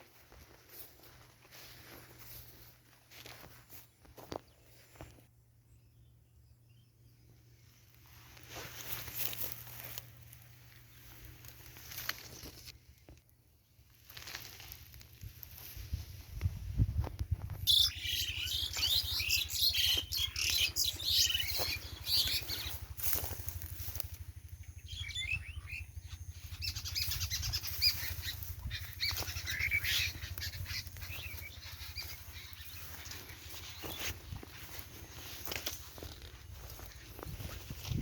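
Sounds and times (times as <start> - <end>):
flock of birds chirping: 0.0 - 5.2, 5.8 - 13.2, 14.0 - 38.0
steady low hum: 20.2 - 38.0.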